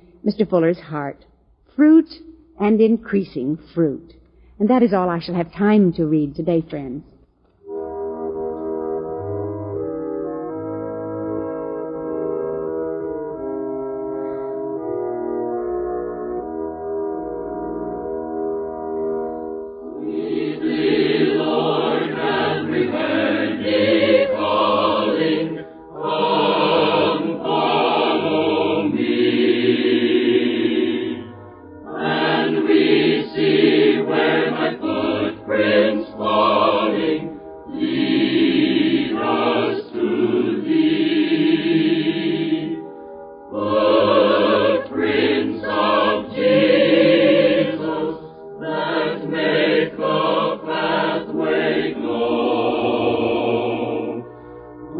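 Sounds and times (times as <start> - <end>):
choir singing a hymn: 19.9 - 42.9, 43.5 - 54.3.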